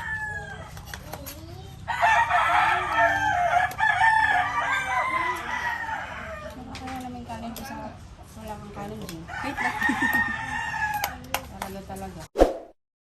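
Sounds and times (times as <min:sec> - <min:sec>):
rooster crowing: 0:00.0 - 0:00.8, 0:01.9 - 0:06.7, 0:09.3 - 0:11.2.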